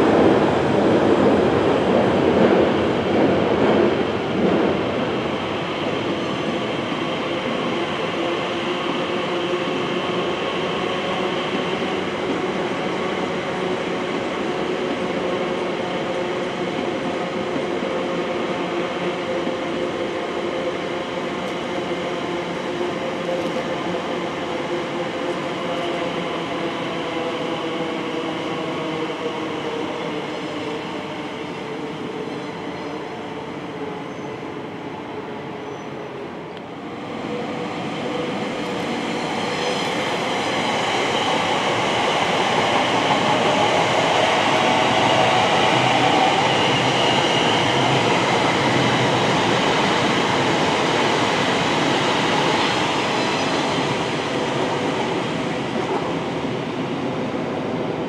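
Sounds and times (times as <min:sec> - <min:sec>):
rail and wheel running noise: 0:00.0 - 0:58.0
electric train passing: 0:36.7 - 0:58.0.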